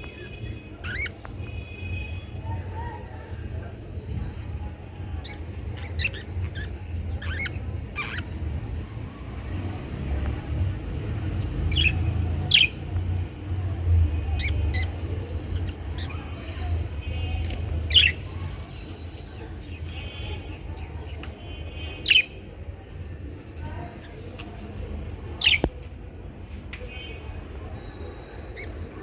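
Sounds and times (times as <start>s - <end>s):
budgerigars chirping: 0.1s - 1.2s, 5.2s - 8.4s, 11.7s - 12.9s, 14.3s - 16.4s, 17.9s - 18.3s, 21.8s - 22.4s, 25.4s - 25.7s.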